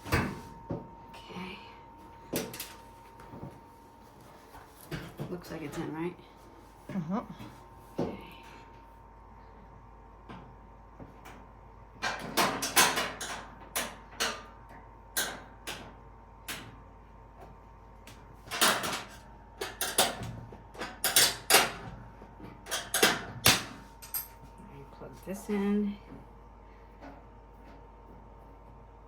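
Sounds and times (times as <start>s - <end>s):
knocks and clunks of parts: 12.0s - 14.5s, 18.1s - 24.4s.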